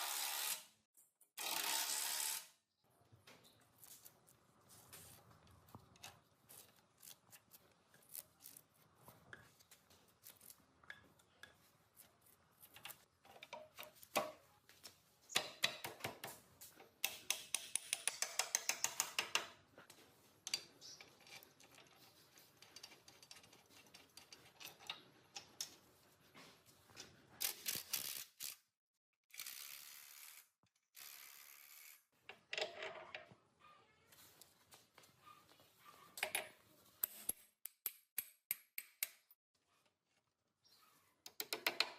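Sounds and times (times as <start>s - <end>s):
metal tools clicking and tapping: 12.7s - 14.3s, 17.0s - 19.6s, 20.4s - 25.8s, 36.2s - 39.3s.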